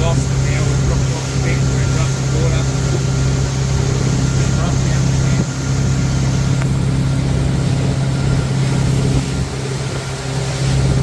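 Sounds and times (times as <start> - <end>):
motorboat engine drone: 0.0 - 11.0
rush of wind and water: 0.0 - 11.0.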